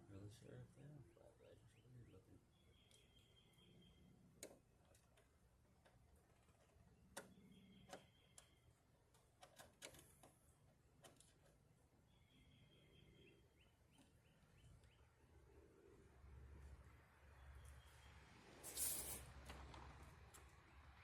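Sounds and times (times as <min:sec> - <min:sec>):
faint high chirp: 0:01.5 - 0:04.2, 0:07.2 - 0:08.8, 0:12.1 - 0:15.1.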